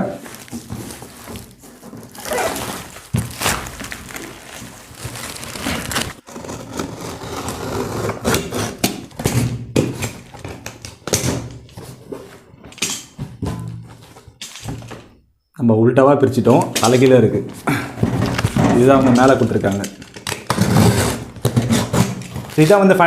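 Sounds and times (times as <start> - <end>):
cardboard rustling and scraping: 0.0 - 15.0, 16.8 - 23.0
thunks of boxed tool box: 0.2 - 6.2, 8.4 - 15.2, 16.6 - 23.0
cardboard carton tearing: 0.3 - 9.0, 20.2 - 22.8.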